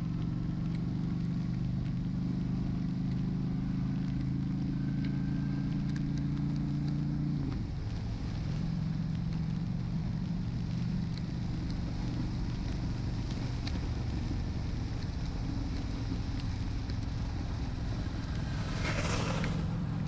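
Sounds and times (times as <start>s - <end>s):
motorcycle engine running: 0.0s - 20.0s
rain ticking on camera: 3.0s - 18.7s.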